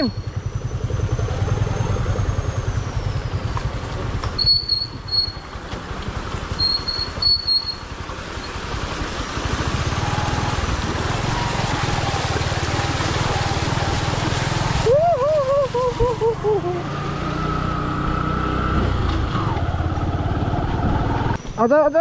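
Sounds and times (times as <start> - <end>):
motorcycle engine running: 0.0 - 21.9
short high squeaks: 4.3 - 5.5, 6.6 - 7.8.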